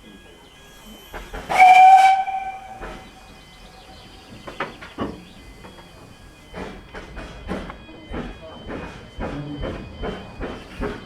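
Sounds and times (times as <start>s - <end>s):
steam locomotive exhaust chuffs: 0.0s - 11.0s
steam locomotive whistle: 1.4s - 5.4s.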